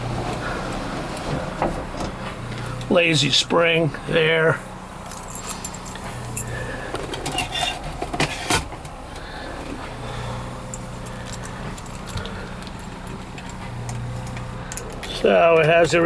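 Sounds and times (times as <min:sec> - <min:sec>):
clicks and light rattles: 0:10.7 - 0:15.8.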